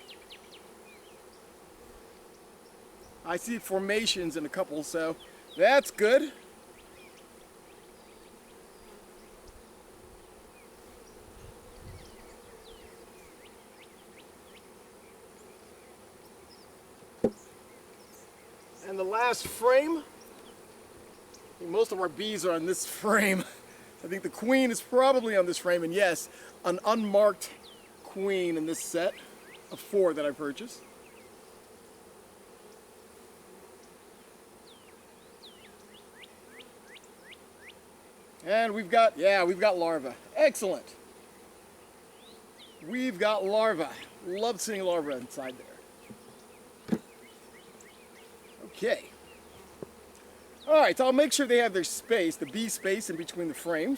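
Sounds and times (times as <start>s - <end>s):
bees buzzing: 0.0s - 53.9s
honeybees humming: 0.0s - 53.9s.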